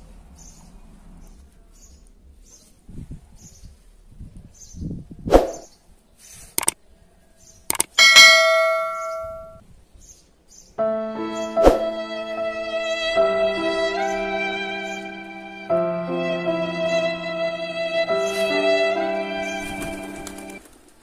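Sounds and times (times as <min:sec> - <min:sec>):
metallic clang ringing: 0:07.9 - 0:09.6.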